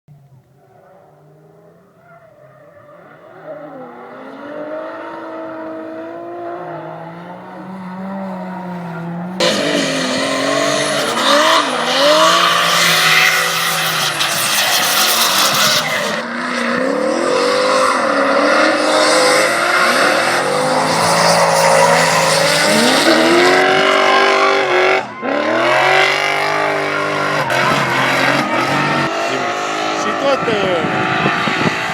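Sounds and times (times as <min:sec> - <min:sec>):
car engine revving: 0:00.2 - 0:31.9
tyre squeal: 0:06.6 - 0:16.3, 0:19.0 - 0:29.1.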